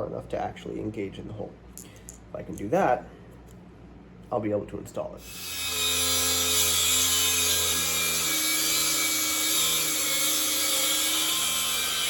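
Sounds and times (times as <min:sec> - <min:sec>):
power tool grinding metal: 0:05.2 - 0:12.0.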